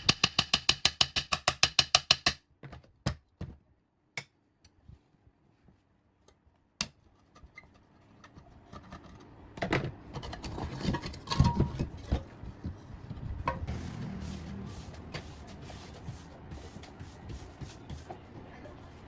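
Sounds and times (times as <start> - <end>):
metal clattering and scraping: 10.1 - 12.4.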